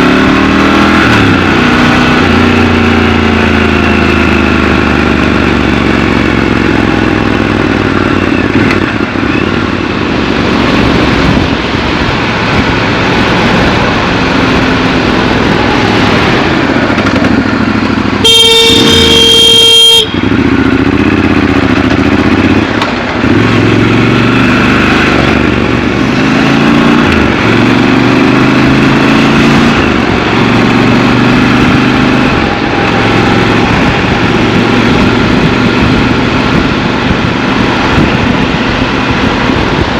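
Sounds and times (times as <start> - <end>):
motorcycle engine revving: 0.0 - 39.9
loud vehicle horn: 18.1 - 21.2.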